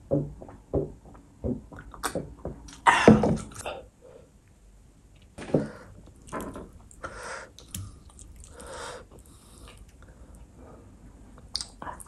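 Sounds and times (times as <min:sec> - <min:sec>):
wet chewing: 0:06.0 - 0:10.0.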